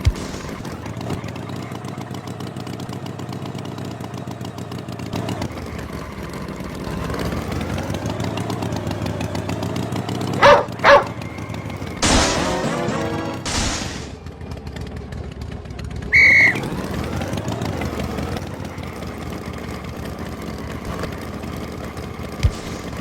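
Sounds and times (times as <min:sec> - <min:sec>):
cartoon tractor engine: 0:00.0 - 0:23.0
dog barking: 0:10.4 - 0:11.2.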